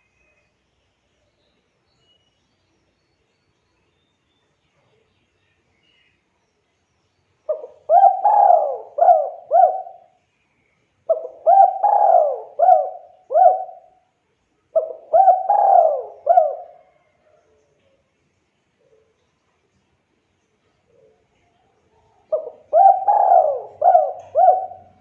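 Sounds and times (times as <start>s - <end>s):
dove cooing: 7.5s - 10.1s, 11.1s - 14.0s, 14.7s - 17.1s, 22.3s - 25.0s.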